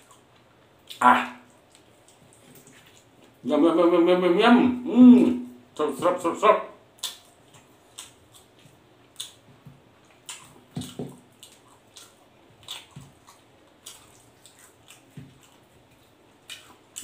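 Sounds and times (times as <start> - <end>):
wet chewing and lip-smacking: 0.0 - 3.4, 7.0 - 17.0.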